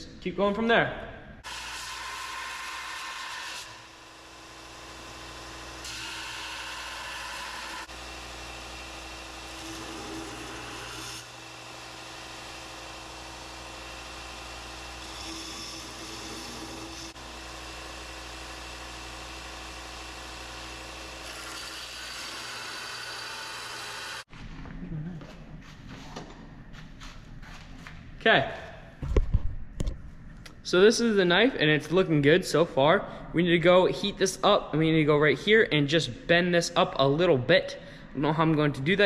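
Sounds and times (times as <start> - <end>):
belt sander motor hum: 3.4 - 24.3.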